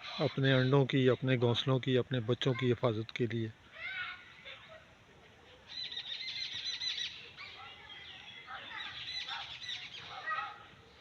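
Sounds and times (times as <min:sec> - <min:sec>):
small birds alarm calls: 0:05.6 - 0:11.0.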